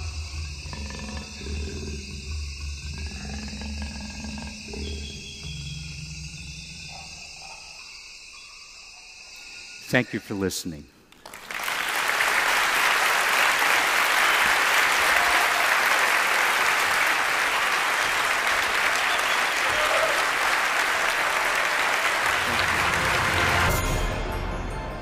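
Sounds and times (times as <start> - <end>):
crowd applauding: 11.2 - 24.0.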